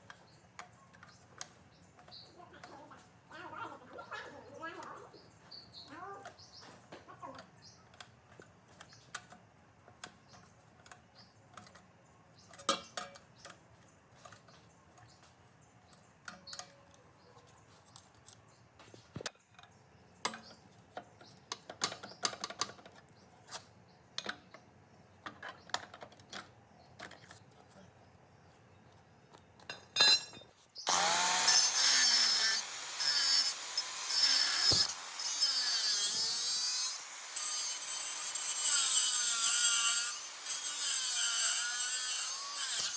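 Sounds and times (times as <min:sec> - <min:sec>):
power tool running: 0:30.9 - 0:42.9.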